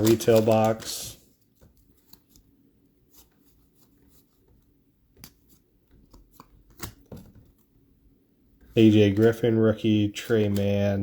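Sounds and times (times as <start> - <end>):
trading cards clicking: 0.0 - 1.0, 10.2 - 10.9.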